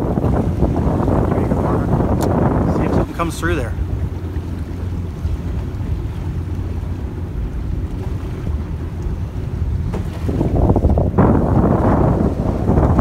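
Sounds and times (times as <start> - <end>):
choppy water around boat: 0.0 - 13.0
wind buffeting microphone: 0.0 - 13.0.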